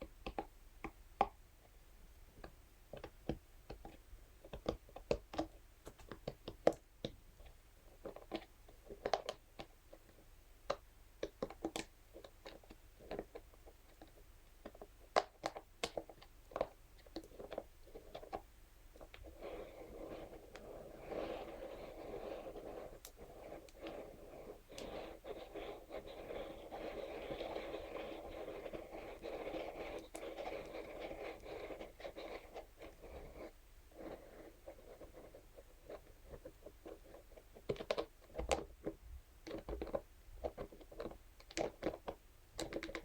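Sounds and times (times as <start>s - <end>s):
scratchy rustle: 19.2s - 38.6s
brush scratching: 19.4s - 36.2s.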